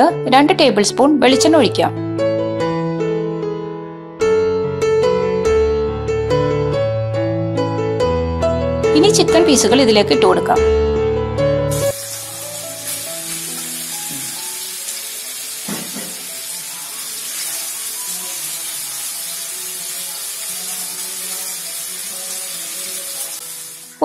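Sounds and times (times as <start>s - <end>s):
chicken sizzling in oil: 11.7s - 24.0s.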